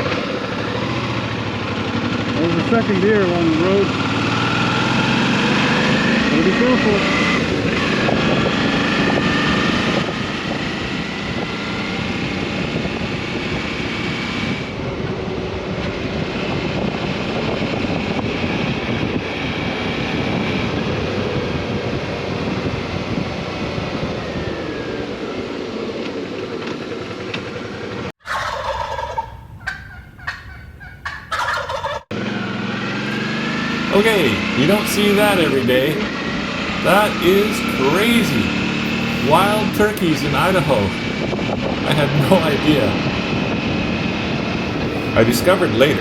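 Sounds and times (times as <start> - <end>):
motorcycle riding: 0.0 - 28.1, 32.1 - 46.0
wind on microphone: 7.3 - 24.8, 40.8 - 41.9
turkeys gobbling: 28.2 - 32.1.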